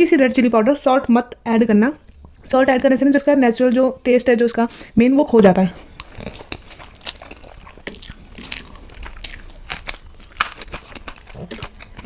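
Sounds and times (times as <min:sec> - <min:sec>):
chewing food: 0:05.4 - 0:12.0.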